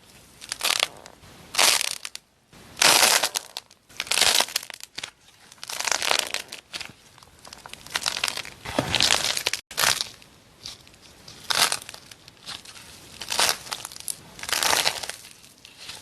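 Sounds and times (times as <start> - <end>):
brittle material crunching by hand: 2.8 - 16.0.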